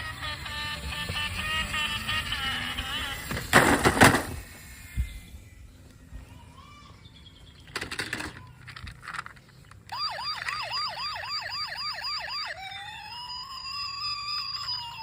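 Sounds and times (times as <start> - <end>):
toy car electronic siren: 0.0 - 3.4, 9.8 - 15.0.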